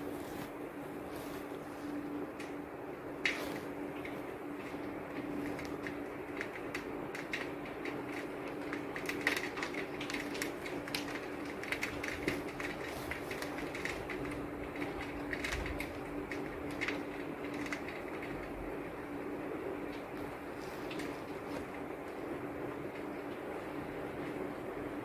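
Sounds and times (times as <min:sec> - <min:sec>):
steady low hum: 0:00.0 - 0:25.0
raindrops tapping hard surface: 0:03.2 - 0:18.7.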